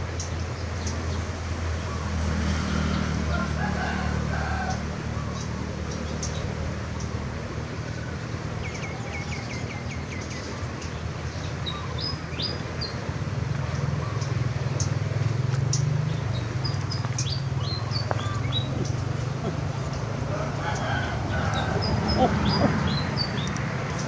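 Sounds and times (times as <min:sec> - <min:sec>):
small birds chirping: 0:04.6 - 0:07.3, 0:07.9 - 0:24.0.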